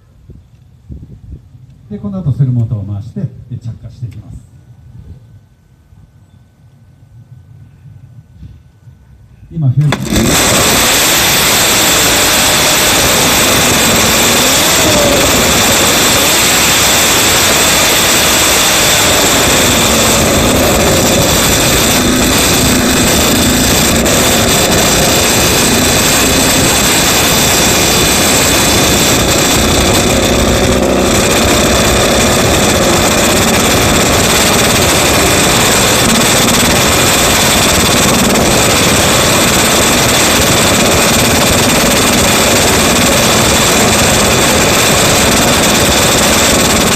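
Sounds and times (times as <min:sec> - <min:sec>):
racing car engine revving: 0:09.9 - 0:46.9.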